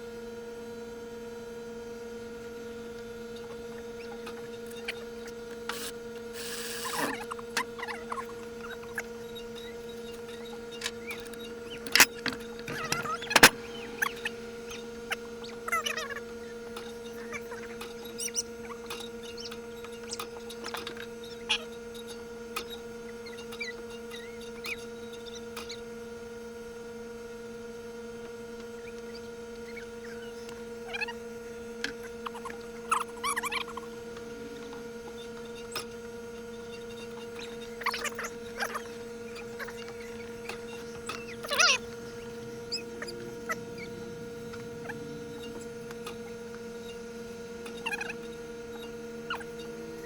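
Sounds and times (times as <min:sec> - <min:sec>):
steady two-tone hum: 0:00.0 - 0:50.0
clicks: 0:04.3 - 0:21.1.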